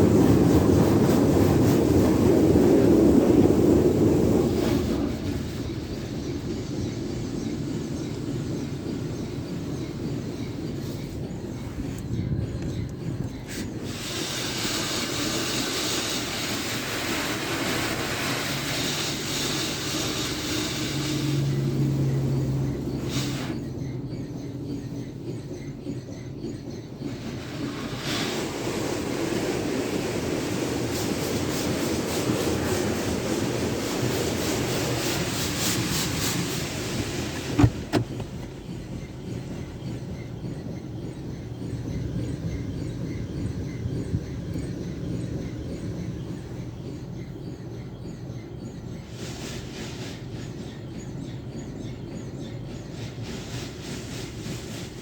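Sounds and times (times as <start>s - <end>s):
car wash water rushing hiss: 0.0s - 12.0s, 13.4s - 23.8s, 27.0s - 39.8s, 49.0s - 50.9s, 52.8s - 55.0s
sharp clunks: 37.5s - 38.6s.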